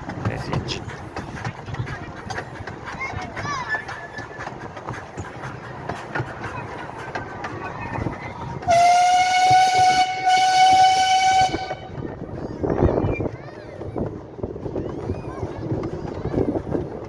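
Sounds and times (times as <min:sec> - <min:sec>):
train wheels clicking over rail joints: 0:00.0 - 0:17.0
steam locomotive whistle: 0:08.7 - 0:12.0.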